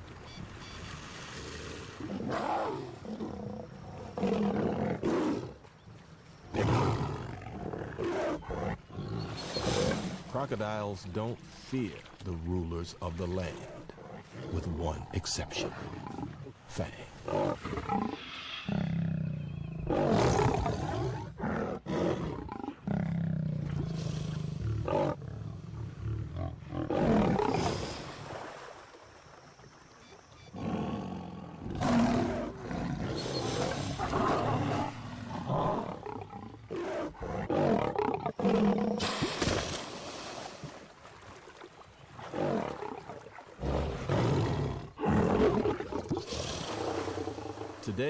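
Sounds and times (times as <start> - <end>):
lions roaring: 17.3 - 27.7, 30.6 - 39.0, 42.3 - 47.8.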